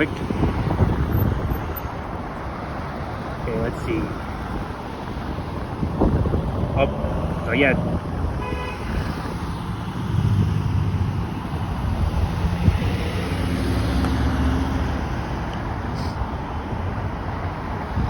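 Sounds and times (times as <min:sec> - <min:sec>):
wind buffeting microphone: 0:00.0 - 0:03.5, 0:04.1 - 0:18.0
traffic engine rumble: 0:00.0 - 0:18.0.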